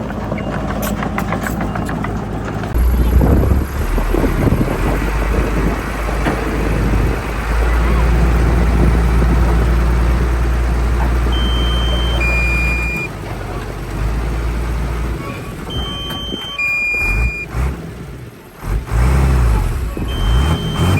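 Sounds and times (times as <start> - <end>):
diesel engine rumbling: 0.0 - 20.9
short high beeps: 11.4 - 13.1, 15.7 - 17.5, 20.1 - 20.9.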